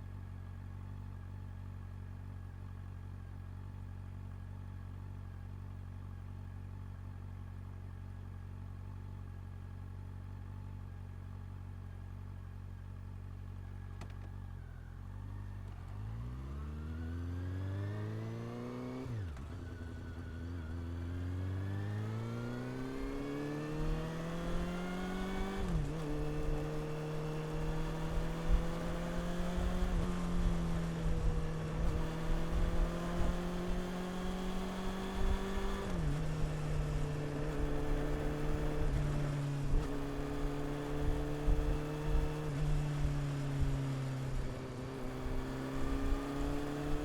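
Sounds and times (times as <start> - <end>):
motorcycle engine accelerating: 13.7 - 47.0.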